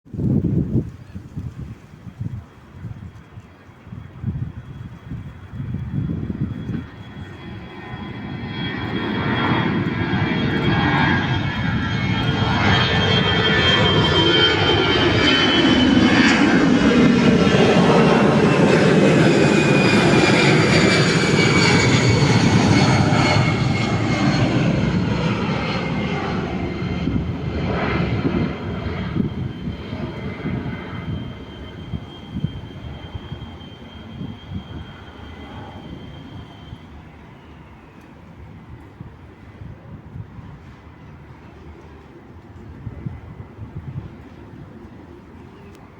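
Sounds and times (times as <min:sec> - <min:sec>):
jet airliner passing: 0:00.1 - 0:45.9
high engine whine: 0:05.5 - 0:38.0.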